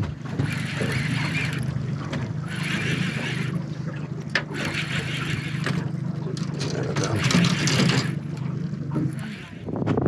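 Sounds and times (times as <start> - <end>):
outboard motor running: 0.0 - 10.0
water noise: 0.0 - 10.0
wind noise: 9.6 - 10.0.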